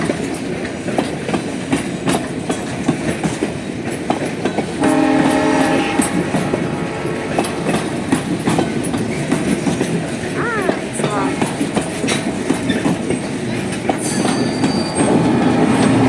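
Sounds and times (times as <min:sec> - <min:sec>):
train wheels clicking over rail joints: 0:00.0 - 0:16.0
train horn: 0:04.7 - 0:09.6, 0:14.6 - 0:16.0.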